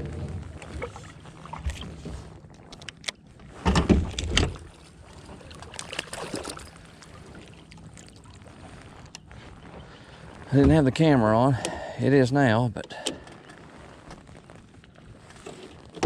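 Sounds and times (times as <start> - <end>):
knocks and thumps in kayak: 0.0 - 2.5, 3.5 - 9.1, 9.8 - 11.1.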